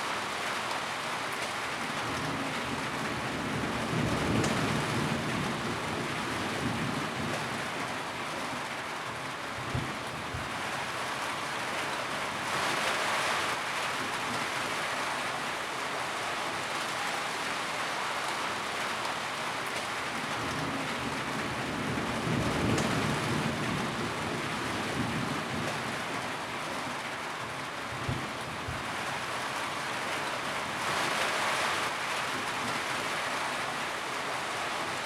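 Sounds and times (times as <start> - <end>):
rain drumming on a tin roof: 0.0 - 35.0.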